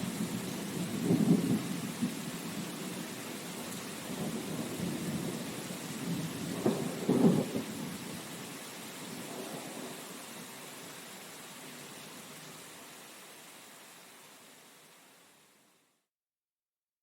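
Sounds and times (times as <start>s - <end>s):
rain hiss: 0.0s - 16.1s
rolling thunder: 0.2s - 2.7s, 4.1s - 8.0s.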